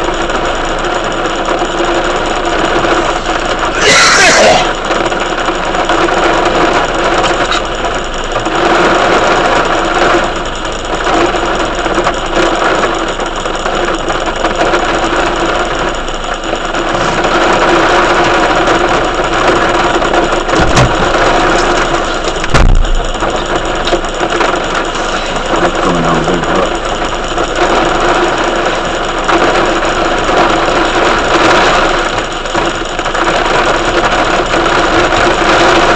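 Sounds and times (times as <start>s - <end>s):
heavy rain hissing: 1.8s - 7.8s, 16.6s - 35.9s
short low thump: 20.5s - 21.7s, 22.4s - 23.4s.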